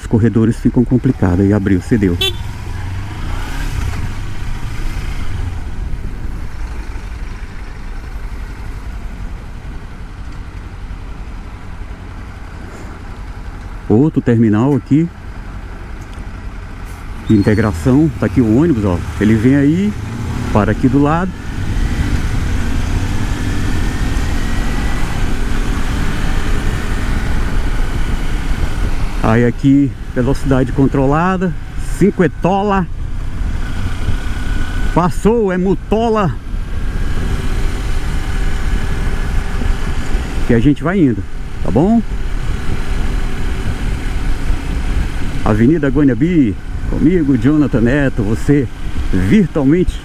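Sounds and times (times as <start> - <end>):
wind and road noise: 0.0 - 50.0
motorcycle engine running: 0.5 - 13.9, 15.1 - 49.8
wind rush: 17.9 - 31.8.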